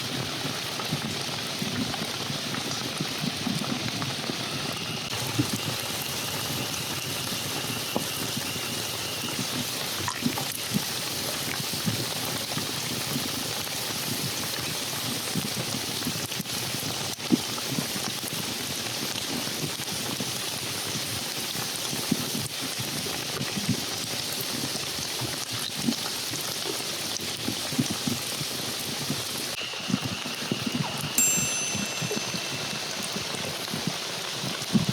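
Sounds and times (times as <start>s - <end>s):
louder raindrops: 0.0s - 13.7s, 22.2s - 34.9s
rain patter: 0.0s - 34.9s.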